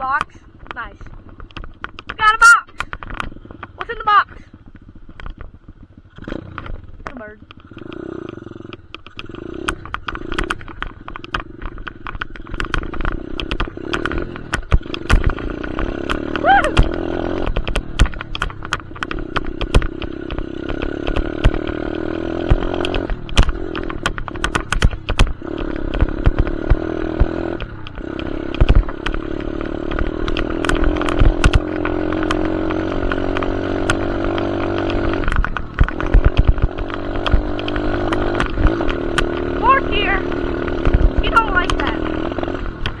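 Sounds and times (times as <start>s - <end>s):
sharp clicks and knocks: 0.0s - 4.0s, 6.1s - 43.0s
dirt bike engine revving: 5.7s - 43.0s.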